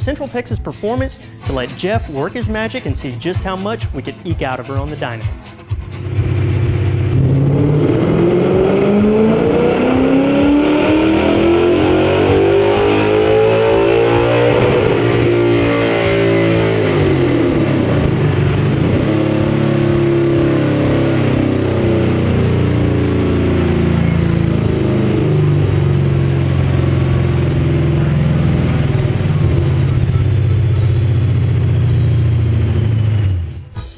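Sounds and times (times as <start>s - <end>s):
engine revving on dyno: 5.9s - 33.6s.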